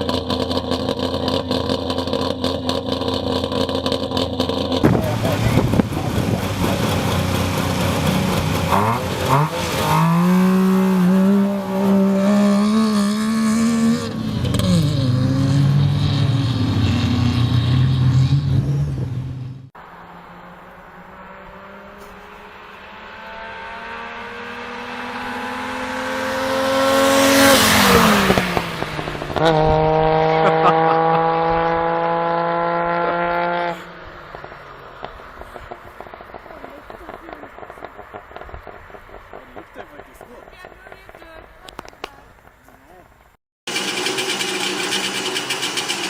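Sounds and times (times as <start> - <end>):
car engine revving and accelerating: 0.0 - 40.4
car passing by: 4.8 - 40.4.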